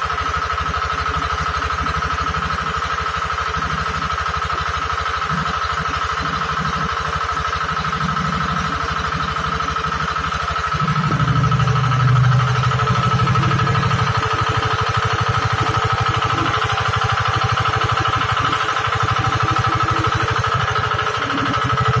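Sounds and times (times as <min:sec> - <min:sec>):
drilling machine engine pulsing: 0:00.0 - 0:22.0
deeper hum: 0:09.4 - 0:16.8.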